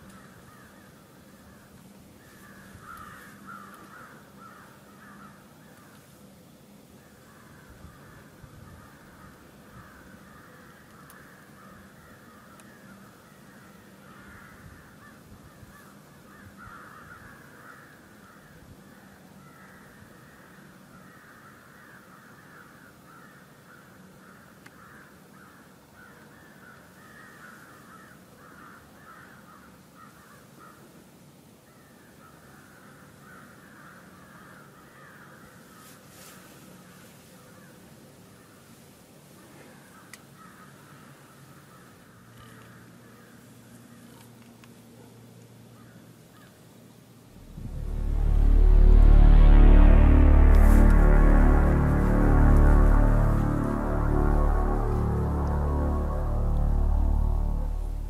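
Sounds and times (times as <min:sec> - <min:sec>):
flock of birds calling: 0:00.0 - 0:06.1, 0:07.0 - 0:30.9.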